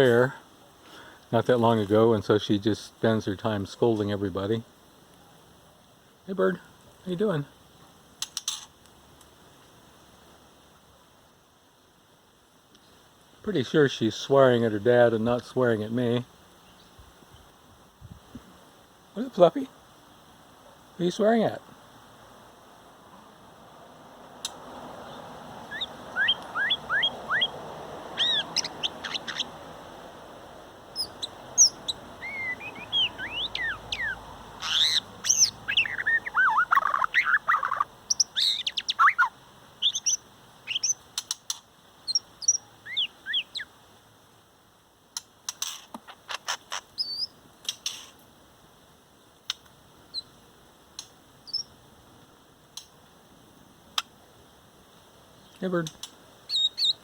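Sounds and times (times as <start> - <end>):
bird sharp clicking calls: 8.2 - 8.7, 25.7 - 27.6, 28.2 - 29.5, 31.0 - 43.7
bird whistling song: 25.7 - 27.6, 28.2 - 29.5, 31.0 - 41.0, 42.1 - 43.7, 46.4 - 47.4, 51.5 - 51.7, 56.5 - 57.0.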